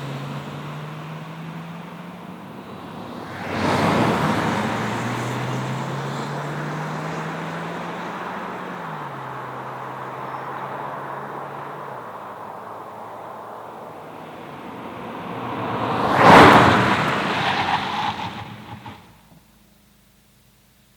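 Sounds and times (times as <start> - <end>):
car engine accelerating: 0.0 - 19.5
loud rushing noise: 2.5 - 6.4, 13.7 - 19.2.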